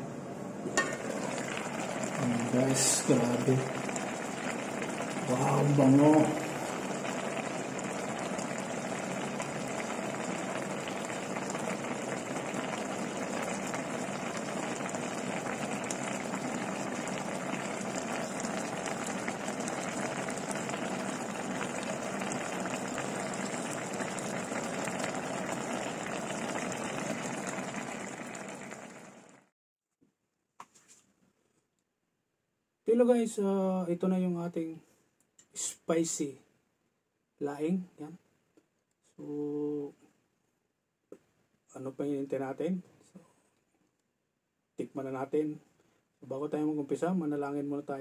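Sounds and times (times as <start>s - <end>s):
pot bubbling at a boil: 0.6s - 29.5s.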